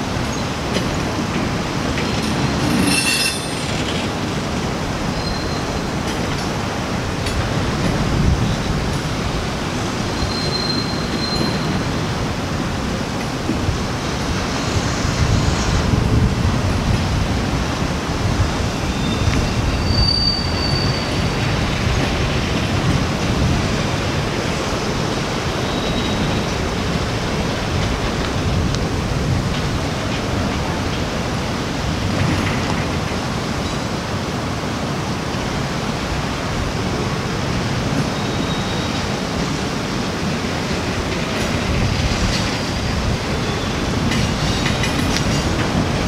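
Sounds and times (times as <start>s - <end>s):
freight train wheels rumbling: 0.0s - 46.0s
wheel squeals: 2.1s - 4.1s, 5.1s - 5.9s, 10.1s - 11.8s, 18.8s - 21.4s, 25.6s - 26.5s.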